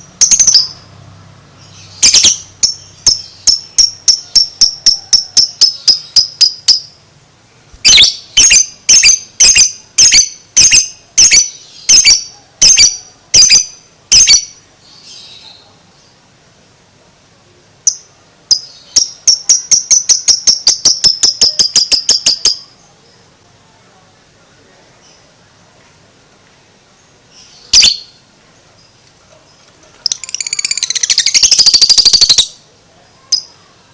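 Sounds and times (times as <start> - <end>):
lovebird shrill calls: 1.8 - 7.0, 7.8 - 14.6, 30.0 - 32.6.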